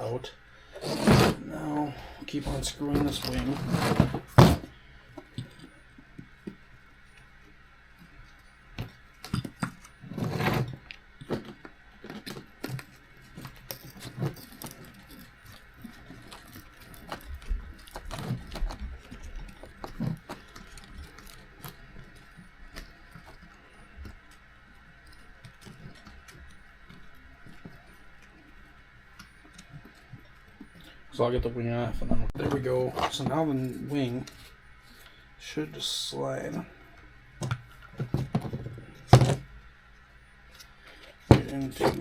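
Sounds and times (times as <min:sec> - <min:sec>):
small parts clicking and rattling: 0:08.2 - 0:30.9.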